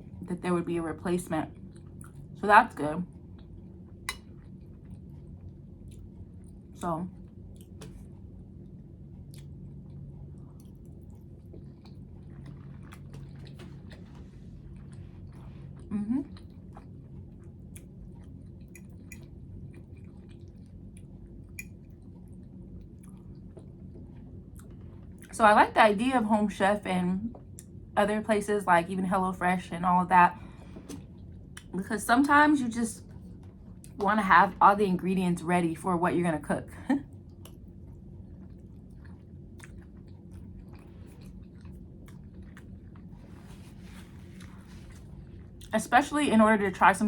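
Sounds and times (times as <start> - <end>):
steady low hum: 0.0 - 47.0
person chewing food: 1.6 - 2.4, 3.2 - 25.3, 30.5 - 31.7, 37.2 - 45.7.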